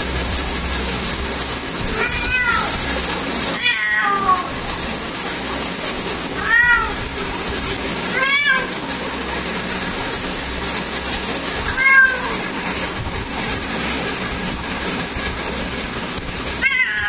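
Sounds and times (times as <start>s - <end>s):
cat meowing: 1.9s - 2.8s, 3.6s - 4.4s, 11.7s - 12.4s, 16.6s - 17.0s.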